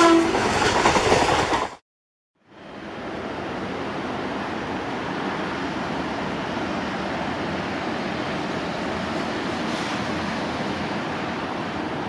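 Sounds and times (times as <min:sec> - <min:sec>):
distant train rushing rumble: 0:02.4 - 0:12.0.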